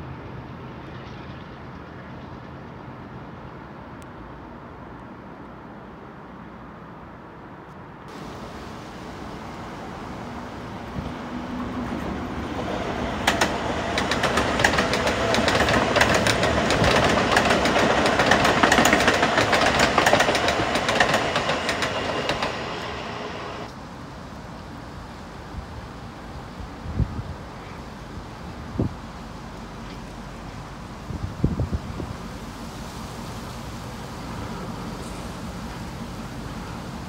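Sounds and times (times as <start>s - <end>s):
passenger train passing: 0.0s - 37.0s
wheels clicking over rail joints: 11.7s - 23.7s.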